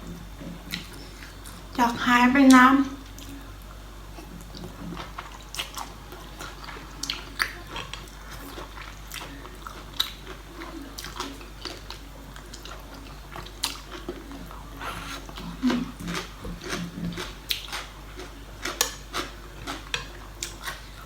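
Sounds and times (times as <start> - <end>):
person biting and chewing food: 4.2 - 20.9.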